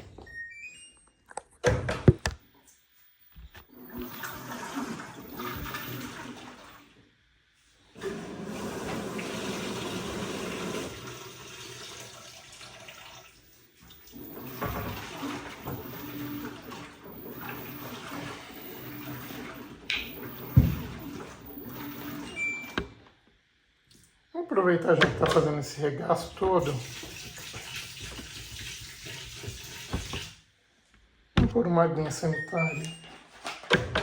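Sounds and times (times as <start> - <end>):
washing machine water sloshing: 3.7 - 7.0, 7.9 - 23.0, 24.9 - 30.5.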